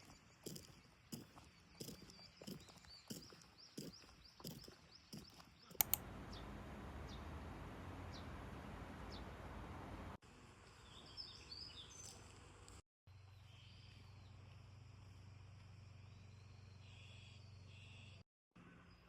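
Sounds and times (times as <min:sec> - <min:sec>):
faint bird chirps: 0:00.0 - 0:06.5, 0:16.0 - 0:19.0
sharp clicks: 0:04.5 - 0:06.1
low hum: 0:05.8 - 0:10.2.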